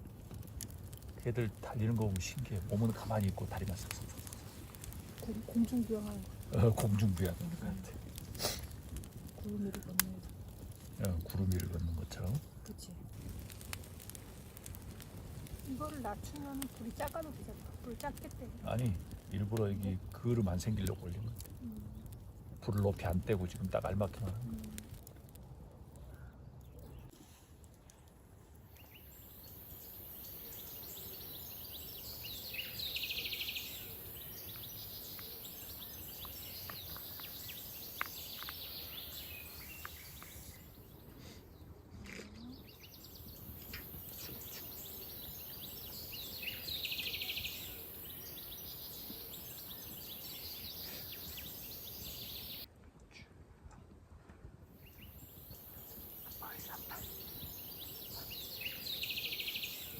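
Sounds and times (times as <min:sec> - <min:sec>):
birds chirping: 0:00.8 - 0:25.0, 0:28.7 - 0:52.7, 0:54.8 - 0:59.9
faint clicks: 0:08.0 - 0:11.7, 0:34.5 - 0:40.5
steady high hiss: 0:42.6 - 0:52.7, 0:54.8 - 0:59.9.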